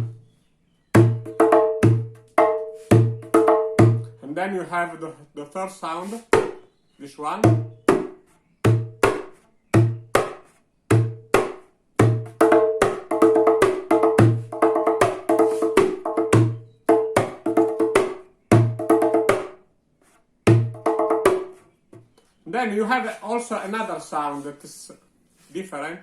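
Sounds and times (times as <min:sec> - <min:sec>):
djembe played by hand: 0:01.0 - 0:04.2, 0:06.3 - 0:06.6, 0:07.4 - 0:19.6, 0:20.5 - 0:21.6.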